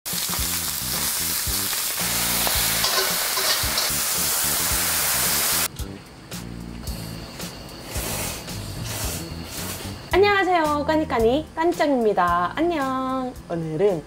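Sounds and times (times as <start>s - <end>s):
meat sizzling on a griddle: 0.1s - 5.7s
background music with bass line: 4.0s - 13.6s.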